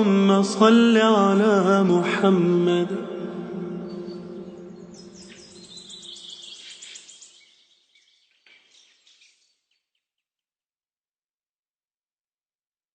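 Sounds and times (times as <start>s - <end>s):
steady low tone: 1.4s - 6.0s
small birds chirping: 3.7s - 10.4s.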